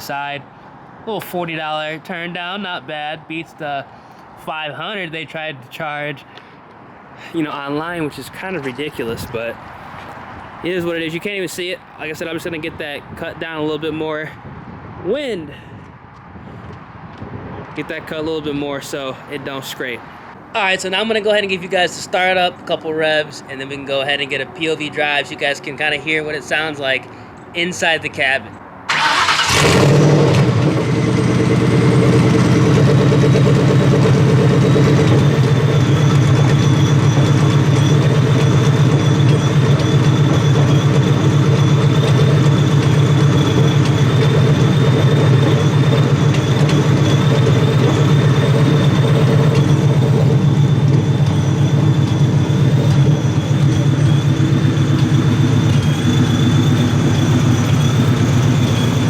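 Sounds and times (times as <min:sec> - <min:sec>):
car engine idling: 0:28.9 - 0:59.0.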